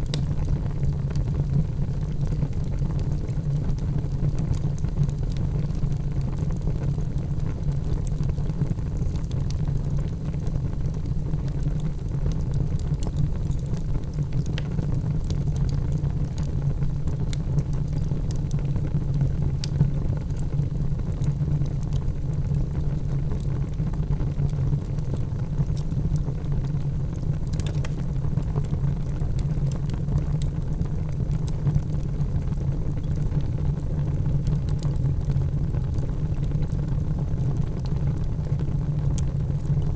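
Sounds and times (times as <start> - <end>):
crackling wood fire: 0.0 - 39.9.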